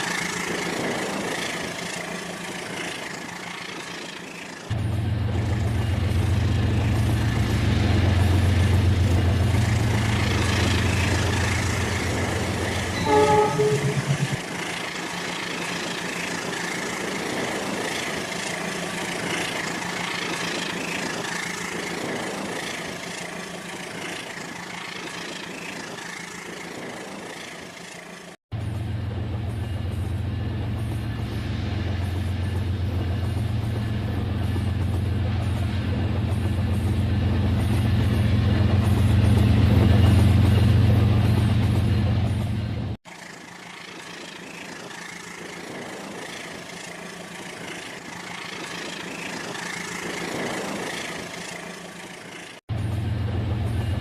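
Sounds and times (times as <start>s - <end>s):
model train rumbling: 0.0s - 54.0s
train horn toot: 12.9s - 14.4s.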